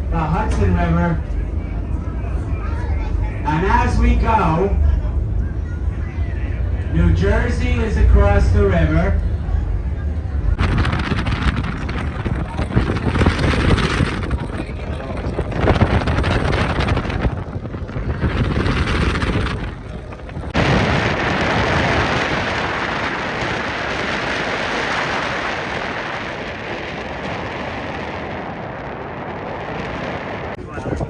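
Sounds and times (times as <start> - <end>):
low gusty thumps: 0.0 - 31.0
wind buffeting microphone: 0.0 - 31.0
rushing hiss of wind and water: 15.4 - 31.0.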